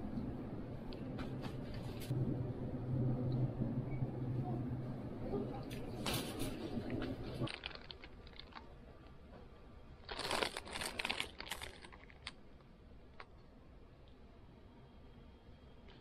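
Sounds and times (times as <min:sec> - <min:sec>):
plastic packaging crinkling: 0:06.0 - 0:08.9, 0:10.0 - 0:12.4.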